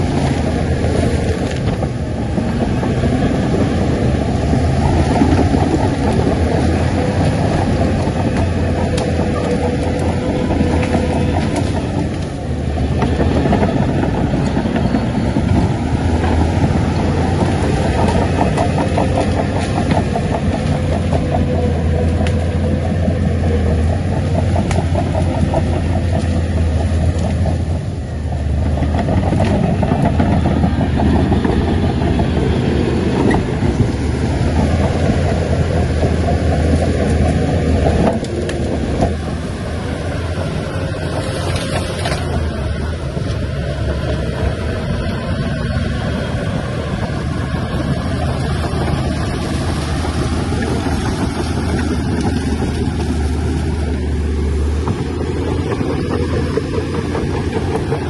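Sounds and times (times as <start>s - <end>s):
heavy diesel engine humming: 0.0s - 58.0s.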